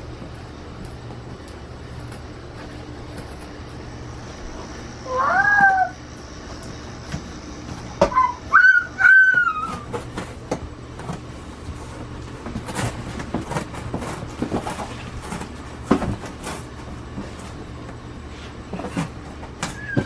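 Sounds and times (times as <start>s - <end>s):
cardboard scraping and scratching: 9.6s - 20.0s.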